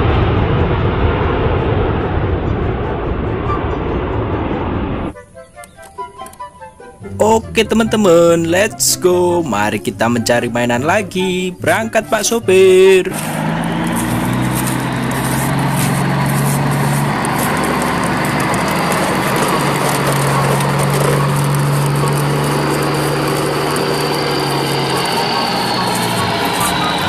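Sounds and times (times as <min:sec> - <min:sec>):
truck engine running: 0:07.0 - 0:27.0.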